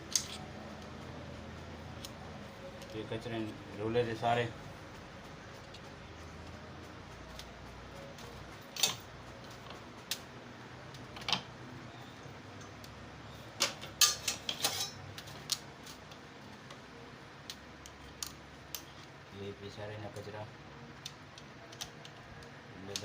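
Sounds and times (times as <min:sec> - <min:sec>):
metal engine parts clinking: 0:00.0 - 0:00.5, 0:08.7 - 0:09.1, 0:13.6 - 0:16.0.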